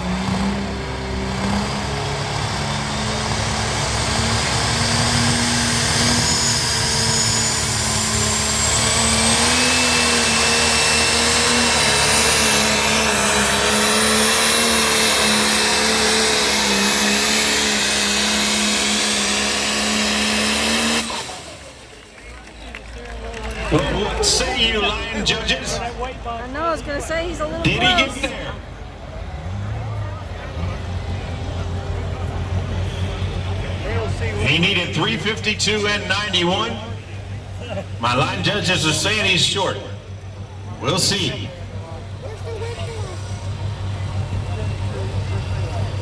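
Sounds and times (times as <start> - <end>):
tractor engine at full throttle: 0.0 - 46.0.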